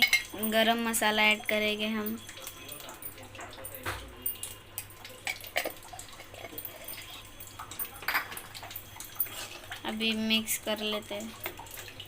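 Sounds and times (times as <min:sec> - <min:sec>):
spoon clinking against pan: 0:00.0 - 0:00.6, 0:02.0 - 0:09.8
soft wet drips: 0:00.0 - 0:12.0.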